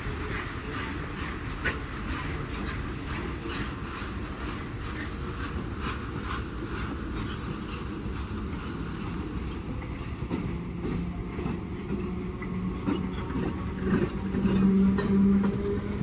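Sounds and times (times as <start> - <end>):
train rumbling on track: 0.0 - 16.0.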